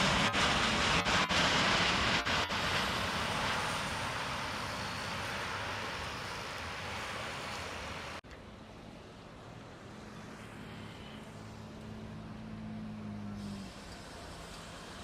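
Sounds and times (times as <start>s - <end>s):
jet engine roar: 0.0s - 8.2s.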